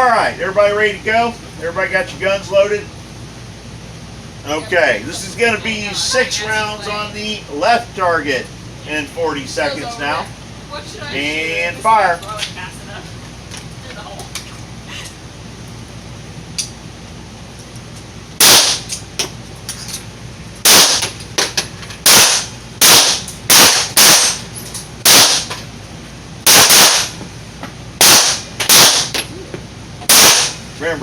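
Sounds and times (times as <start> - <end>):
pistol shots: 18.4 - 19.0, 20.6 - 21.2, 22.0 - 24.4, 25.0 - 25.5, 26.5 - 27.2, 28.0 - 29.2, 30.1 - 30.6.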